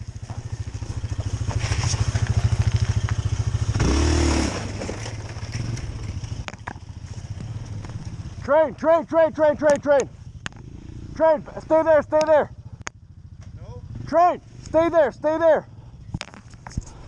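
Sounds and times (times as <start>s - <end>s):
snowmobile engine running: 0.0s - 10.1s, 10.9s - 12.8s.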